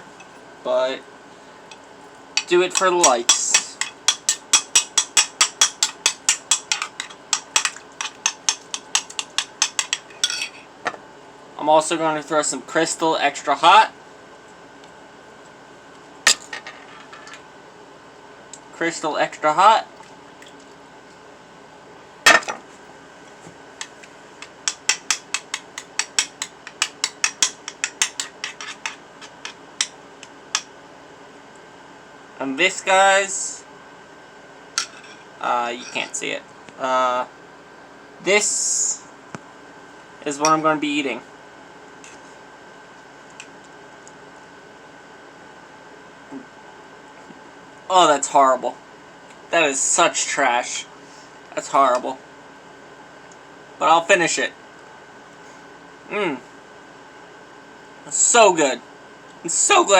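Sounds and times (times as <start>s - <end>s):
metal utensil clicking against dish: 2.4s - 10.4s, 24.6s - 29.9s.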